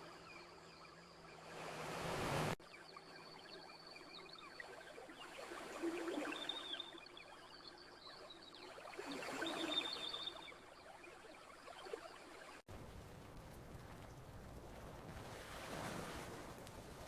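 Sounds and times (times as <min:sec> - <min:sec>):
ocean wave washing in: 0:01.4 - 0:02.6
campfire crackling: 0:12.7 - 0:17.0.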